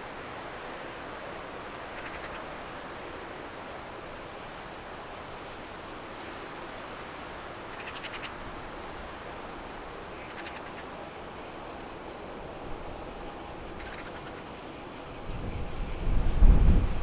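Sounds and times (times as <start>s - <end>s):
insects chirping: 0.0s - 17.0s
jet rumble: 15.8s - 17.0s.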